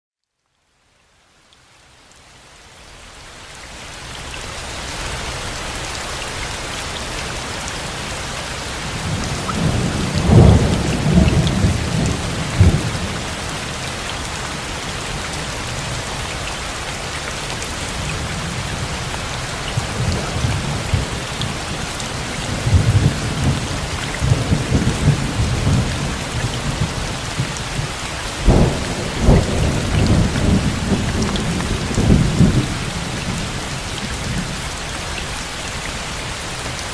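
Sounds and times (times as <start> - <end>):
steady rain falling: 0.2 - 36.9
thunder rumbling: 9.0 - 13.3, 28.4 - 34.6.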